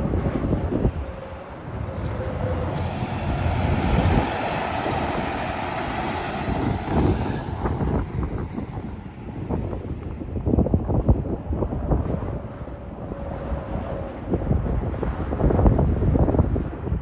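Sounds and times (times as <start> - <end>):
heavy truck passing: 0.0 - 11.7.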